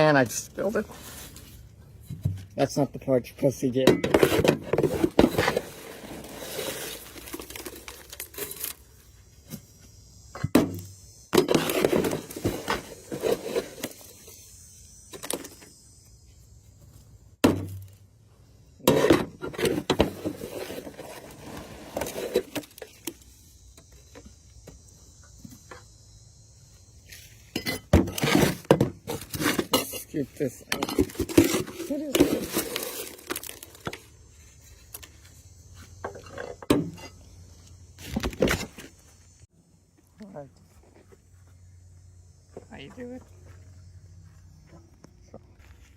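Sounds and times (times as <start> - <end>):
debris scraped from gutter: 4.1 - 8.8, 11.4 - 14.1, 18.8 - 23.2, 30.9 - 34.0.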